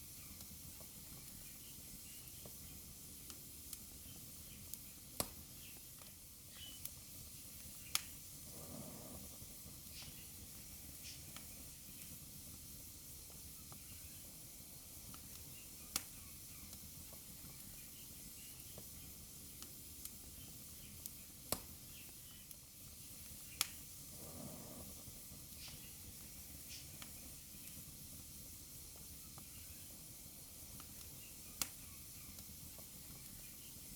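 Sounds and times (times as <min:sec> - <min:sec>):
wood fire crackling: 0:00.0 - 0:33.9
sharp fire pops: 0:04.6 - 0:07.0, 0:20.8 - 0:22.4, 0:23.2 - 0:23.9, 0:30.8 - 0:33.6.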